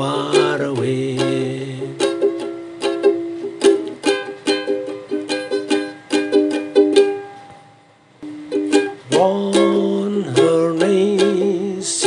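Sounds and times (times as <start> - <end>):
ukulele strumming chords: 0.0 - 12.0.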